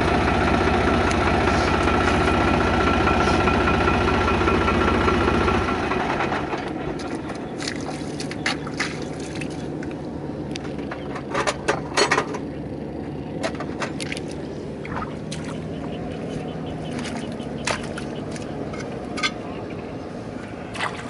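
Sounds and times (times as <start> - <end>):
tractor diesel engine running: 0.0 - 21.0
sharp metallic clicks and knocks: 10.5 - 12.5.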